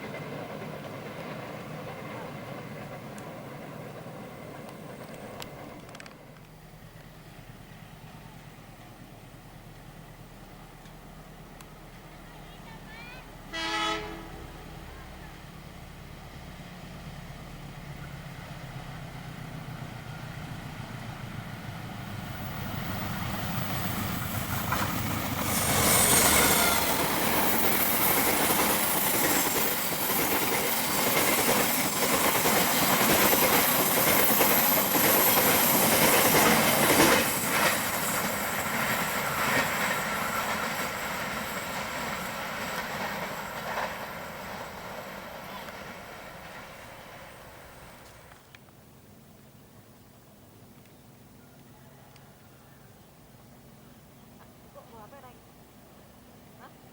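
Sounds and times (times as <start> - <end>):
rush of passing carriages: 0.0 - 48.4
locomotive hum: 0.0 - 52.5
wheels clacking over rail joints: 17.8 - 48.6.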